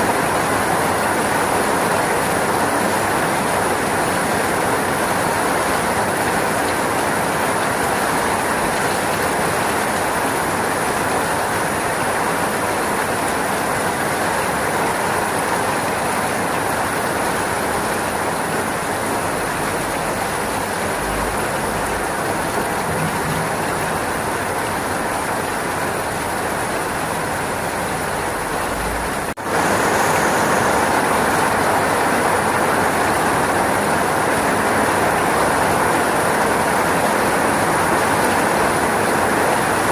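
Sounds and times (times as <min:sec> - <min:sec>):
dense rainfall hiss: 0:00.0 - 0:39.9.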